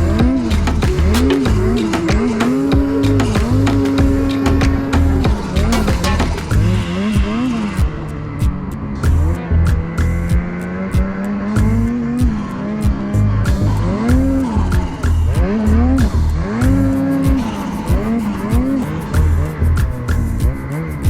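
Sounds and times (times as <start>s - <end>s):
music with steady beat: 0.0s - 21.0s
snowmobile engine revving: 0.0s - 21.0s.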